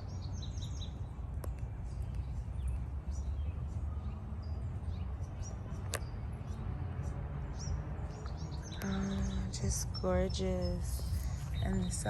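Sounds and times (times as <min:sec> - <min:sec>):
small birds chirping: 0:00.0 - 0:12.0
steady low rumble: 0:00.0 - 0:12.0.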